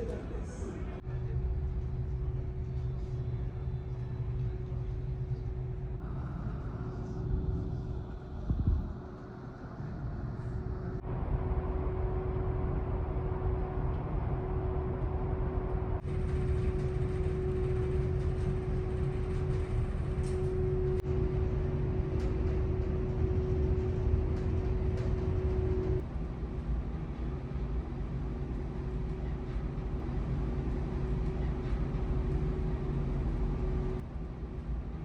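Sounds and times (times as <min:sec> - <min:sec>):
ship engines rumbling: 0:00.0 - 0:04.0, 0:04.6 - 0:26.0.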